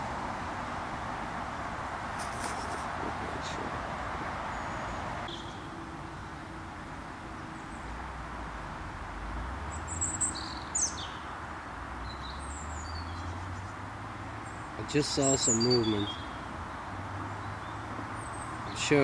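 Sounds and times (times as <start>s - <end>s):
low steady outdoor rumble: 0.0s - 15.4s
high bird chirps: 4.5s - 5.7s, 15.2s - 16.5s.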